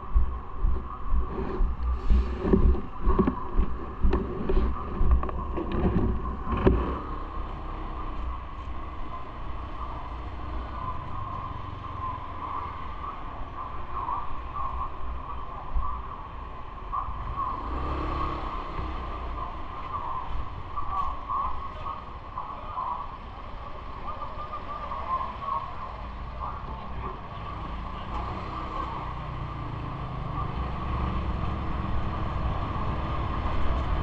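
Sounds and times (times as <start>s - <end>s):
steady mid-pitched hum: 0.0s - 17.6s
wind and rolling rumble: 0.0s - 34.0s.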